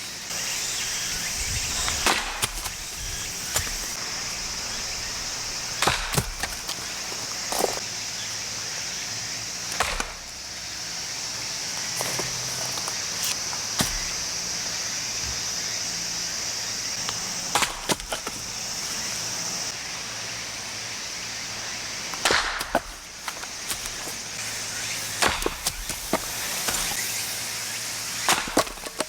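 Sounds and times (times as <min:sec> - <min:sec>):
maul splitting firewood: 0:00.0 - 0:07.9, 0:09.5 - 0:29.0
high-pitched hiss: 0:00.0 - 0:29.0
split wood pieces clattering: 0:01.7 - 0:07.8, 0:11.7 - 0:14.6, 0:17.0 - 0:19.6, 0:22.1 - 0:27.0, 0:28.2 - 0:29.0.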